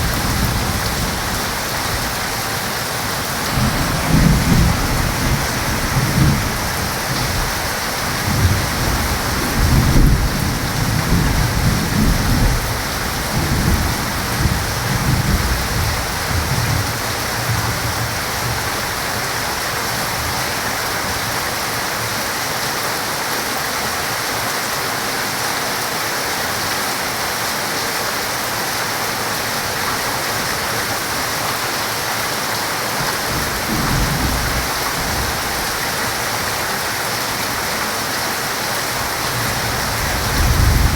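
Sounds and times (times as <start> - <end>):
low rolling thunder: 0.0 - 20.4, 33.0 - 36.6, 38.9 - 40.9
heavy rain: 0.0 - 40.9.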